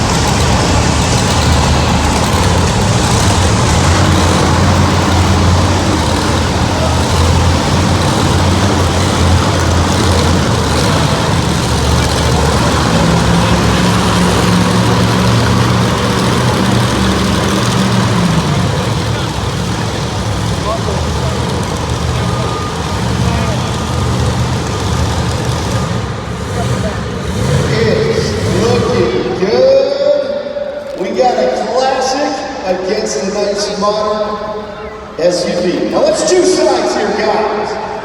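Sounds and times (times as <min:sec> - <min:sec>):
monster truck engines droning: 0:00.0 - 0:38.0.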